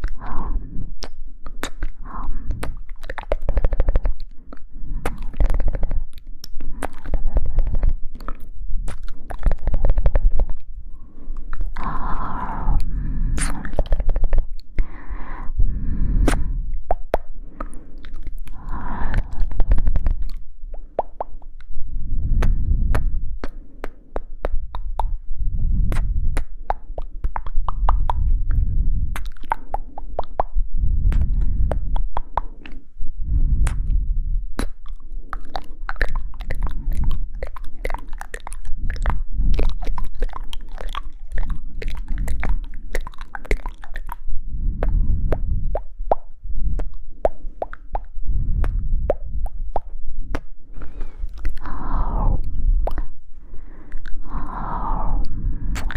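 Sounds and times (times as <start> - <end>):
low muffled swells: 0.0 - 3.0, 21.7 - 26.4, 27.8 - 29.2, 30.6 - 32.0, 32.9 - 34.6, 44.3 - 55.9
wet mouth clicks and pops: 0.0 - 32.9, 33.5 - 34.0, 34.6 - 55.9.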